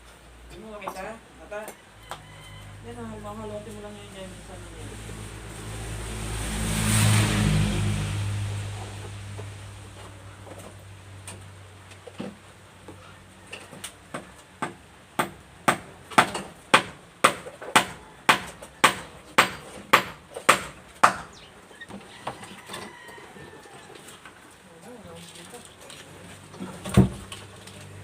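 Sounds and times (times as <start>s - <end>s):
hammer striking: 14.6s - 21.3s.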